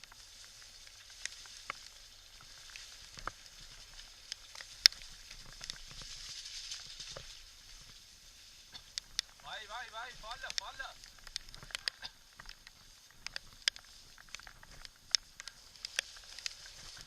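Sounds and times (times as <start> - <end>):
heavy rain hissing: 0.0 - 11.2.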